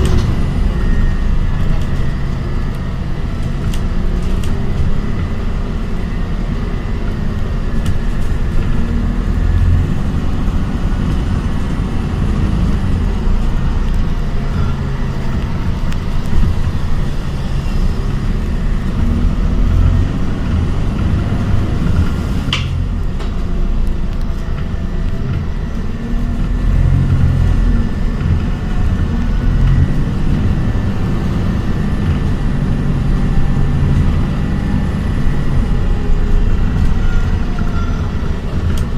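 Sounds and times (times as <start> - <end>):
bus rumbling on the road: 0.0 - 38.9.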